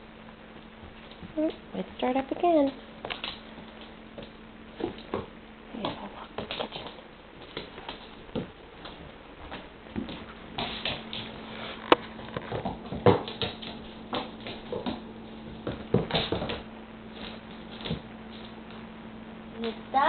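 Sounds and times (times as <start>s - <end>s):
dog scuffling with ball toy: 4.2s - 18.5s.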